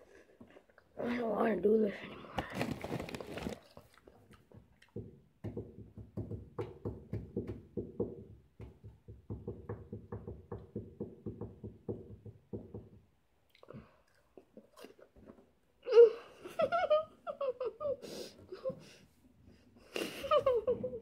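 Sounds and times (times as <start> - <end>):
snack bag rustling: 2.4 - 4.1.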